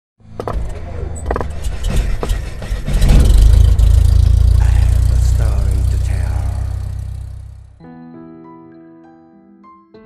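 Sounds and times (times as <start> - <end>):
engine starting and rumbling: 0.3 - 7.8.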